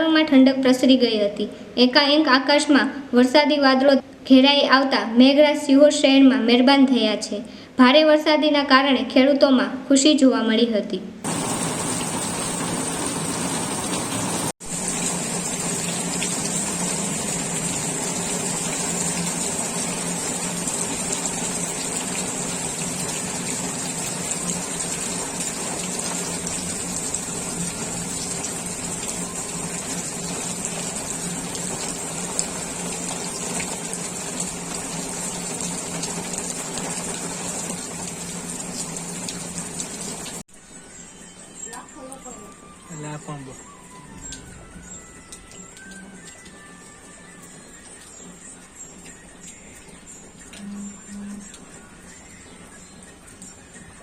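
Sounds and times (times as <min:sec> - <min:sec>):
heavy rain pouring: 0:11.2 - 0:40.4, 0:41.6 - 0:54.0.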